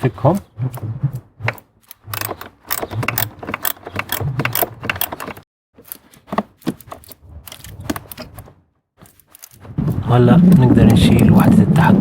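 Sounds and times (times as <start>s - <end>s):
screwdriver clicking and scraping: 1.4s - 8.4s.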